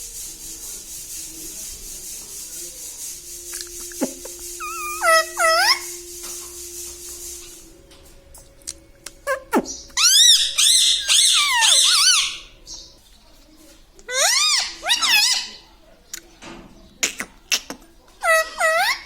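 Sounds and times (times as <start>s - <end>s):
parrot warbling chatter: 4.6s - 6.0s, 9.2s - 12.6s, 14.1s - 15.6s.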